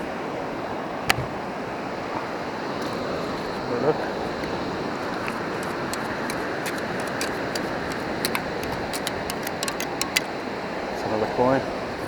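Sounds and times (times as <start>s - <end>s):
beach surf rushing: 0.0s - 12.0s
small sharp clicks and rattles: 4.3s - 10.4s.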